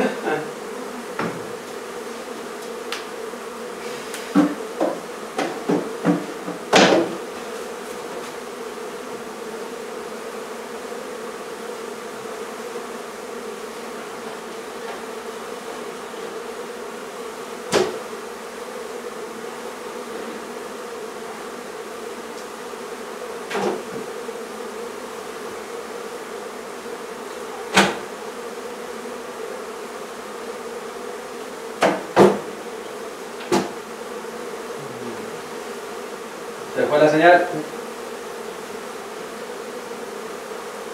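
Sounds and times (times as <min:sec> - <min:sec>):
honey bees buzzing: 0:00.0 - 0:40.9
sharp knocks: 0:04.3 - 0:07.2, 0:17.7 - 0:18.0, 0:31.8 - 0:32.5, 0:33.4 - 0:33.8.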